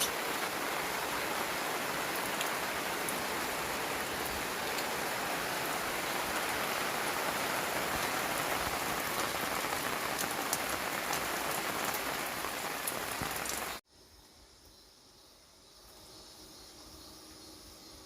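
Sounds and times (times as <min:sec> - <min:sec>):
steady rain falling: 0:00.0 - 0:13.8
raindrop ticks: 0:02.2 - 0:03.2, 0:08.7 - 0:13.8.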